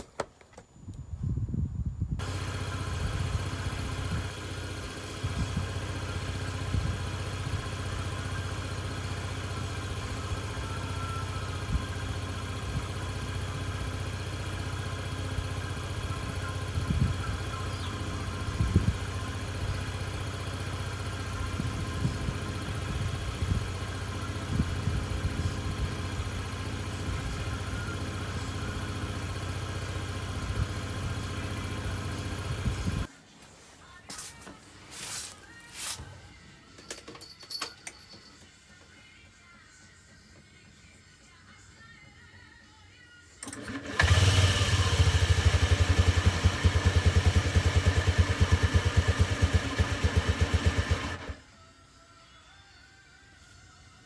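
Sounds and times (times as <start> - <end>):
moped engine idling: 2.2 - 33.1, 43.6 - 51.4.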